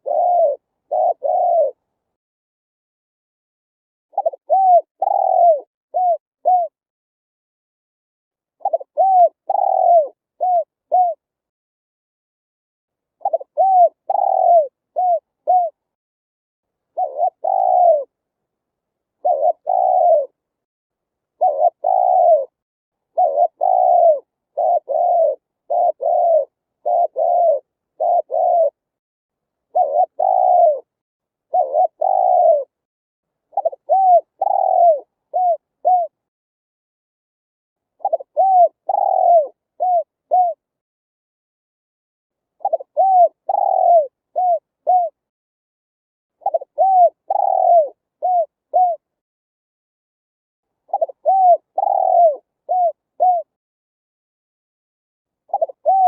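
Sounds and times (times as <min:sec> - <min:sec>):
dove cooing: 0:00.0 - 0:01.8, 0:04.1 - 0:06.8, 0:08.6 - 0:11.2, 0:13.2 - 0:15.8, 0:17.0 - 0:18.1, 0:19.2 - 0:20.4, 0:21.4 - 0:22.6, 0:23.2 - 0:28.8, 0:29.7 - 0:30.9, 0:31.5 - 0:32.8, 0:33.5 - 0:36.2, 0:38.0 - 0:40.6, 0:42.6 - 0:45.2, 0:46.4 - 0:49.1, 0:50.9 - 0:53.5, 0:55.5 - 0:56.0.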